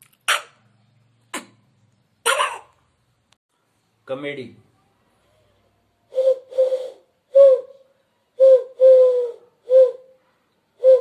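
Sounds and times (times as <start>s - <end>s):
dove cooing: 8.4s - 10.2s, 10.8s - 11.0s.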